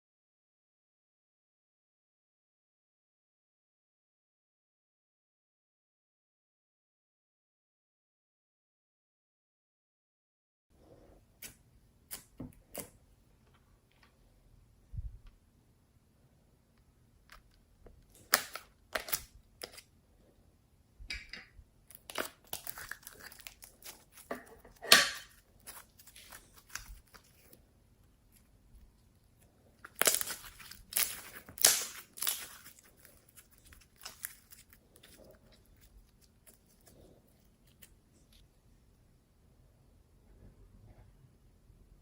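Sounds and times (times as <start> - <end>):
slime crackling and popping: 17.3 - 19.8, 21.9 - 24.3, 25.3 - 27.6, 29.8 - 37.9.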